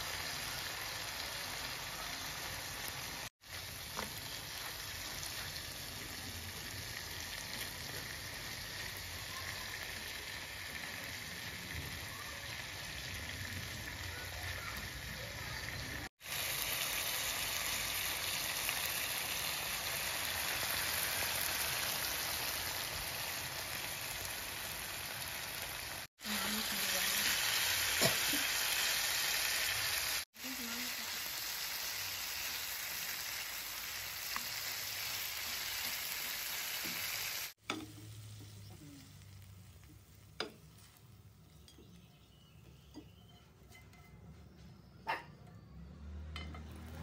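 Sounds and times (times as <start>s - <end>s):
sauce sizzling in a frying pan: 0.0s - 42.0s.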